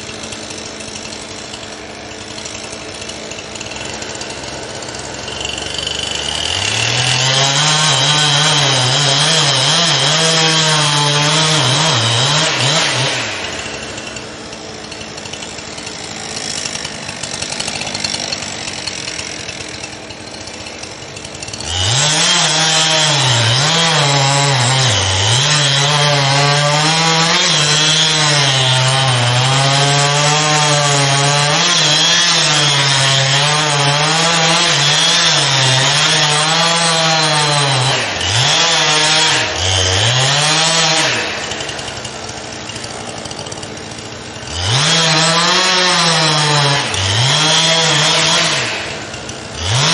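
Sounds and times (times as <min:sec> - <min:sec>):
chainsaw revving and cutting wood: 0:00.0 - 0:49.9.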